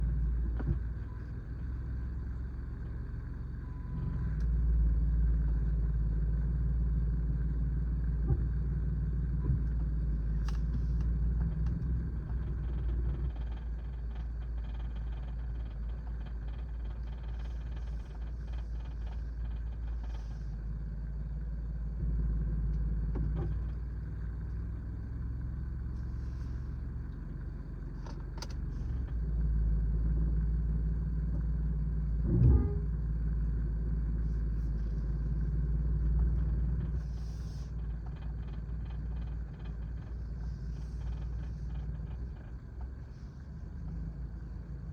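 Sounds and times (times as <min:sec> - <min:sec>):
car engine idling: 0:00.0 - 0:44.9
vibrating rattle: 0:34.9 - 0:43.1.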